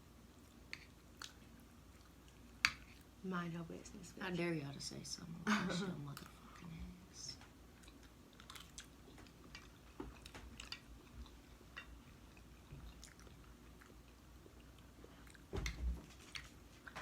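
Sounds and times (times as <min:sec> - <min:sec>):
chewing soft pasta: 0:00.2 - 0:03.2, 0:07.3 - 0:17.0.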